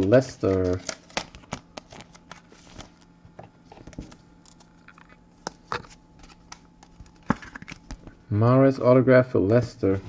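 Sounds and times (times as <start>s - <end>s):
faint steady hum: 0.0s - 10.0s
cards clicking and tapping: 0.4s - 2.4s.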